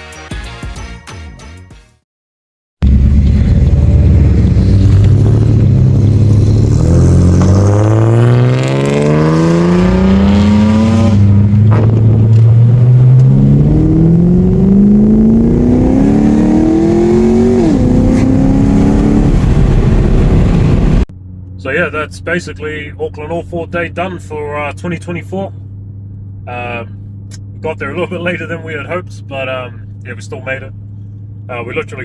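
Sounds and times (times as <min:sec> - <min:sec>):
car engine accelerating hard: 0:02.8 - 0:21.1.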